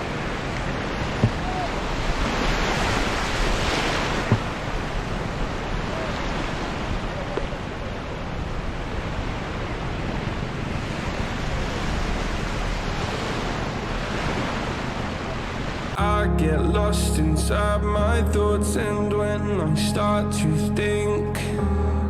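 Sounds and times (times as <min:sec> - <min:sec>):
surf washing onto beach: 0:00.0 - 0:16.0
wind buffeting microphone: 0:00.0 - 0:16.0.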